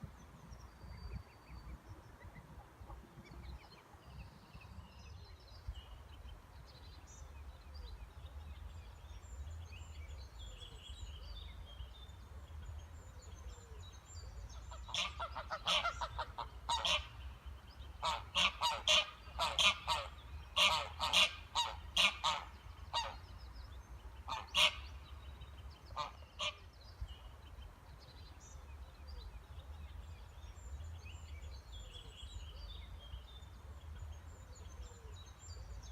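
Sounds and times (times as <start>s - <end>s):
waterfowl calling: 14.9s - 17.1s, 18.0s - 23.2s, 24.3s - 24.8s.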